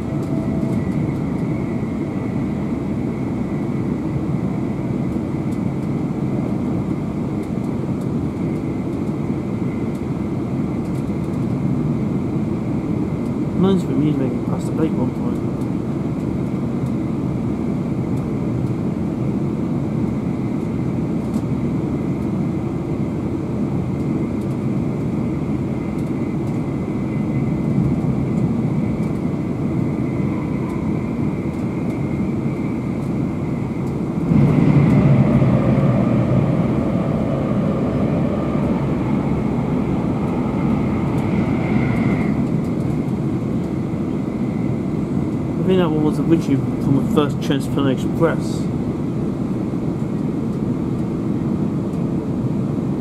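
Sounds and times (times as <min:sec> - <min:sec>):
passing train: 0:00.0 - 0:53.0
train wheels rumbling on rails: 0:00.0 - 0:53.0.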